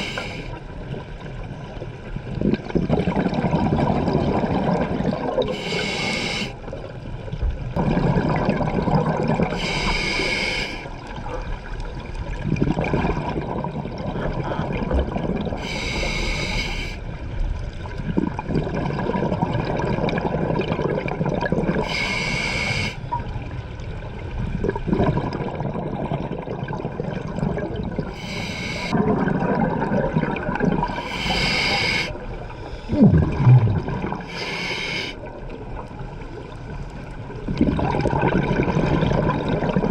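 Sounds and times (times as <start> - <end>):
hissing regulator inhale: 0.0 - 0.6, 5.5 - 6.6, 9.6 - 10.9, 15.6 - 17.0, 21.8 - 23.0, 28.1 - 29.0, 30.9 - 33.0, 34.2 - 35.3
bubbling gurgling exhale: 2.3 - 7.0, 7.7 - 17.0, 17.8 - 23.3, 24.3 - 39.9.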